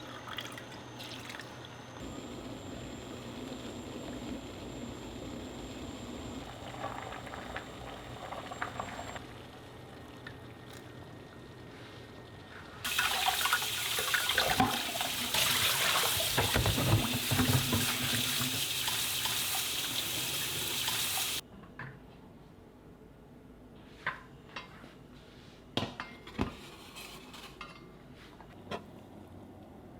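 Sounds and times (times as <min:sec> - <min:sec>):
tap running into sink: 0:14.3 - 0:21.3.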